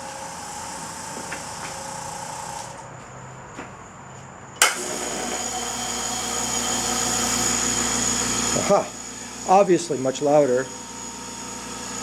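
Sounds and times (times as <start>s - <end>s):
air compressor running: 0.0s - 2.8s, 4.6s - 12.0s
compressor switch click: 4.6s - 5.4s.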